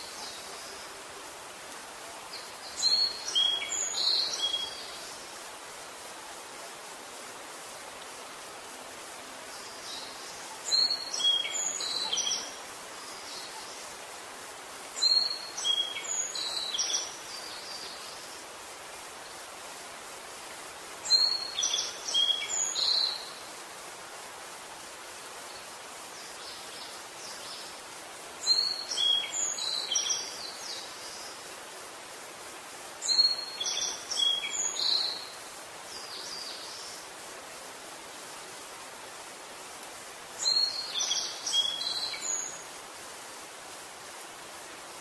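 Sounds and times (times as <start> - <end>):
songbird chirping: 0.0 - 6.2, 9.0 - 14.2, 14.8 - 19.6, 20.9 - 23.6, 25.3 - 31.7, 32.9 - 43.0
steady hiss: 0.0 - 45.0.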